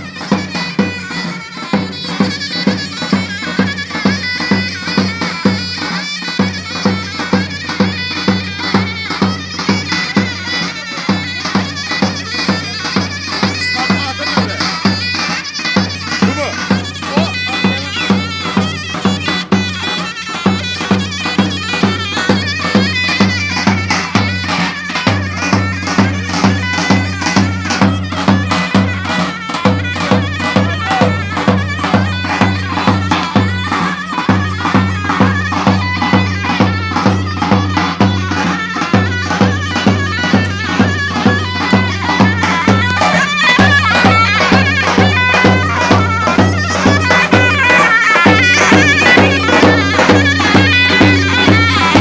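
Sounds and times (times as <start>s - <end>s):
shrill reedy double-reed melody: 0.0s - 52.0s
steady bass drum beat: 48.2s - 52.0s.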